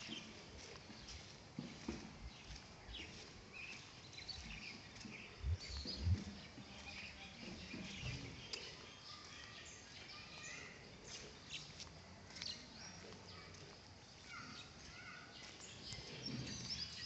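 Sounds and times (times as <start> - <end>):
birds chirping: 0.0 - 17.0
low thumps: 5.4 - 6.4.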